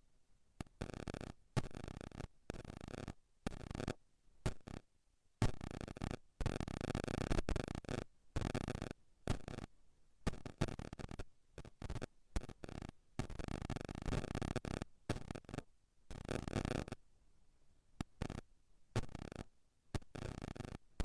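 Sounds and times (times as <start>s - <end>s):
static hiss and crackle: 0.6s - 4.8s, 10.3s - 17.0s, 18.0s - 20.9s.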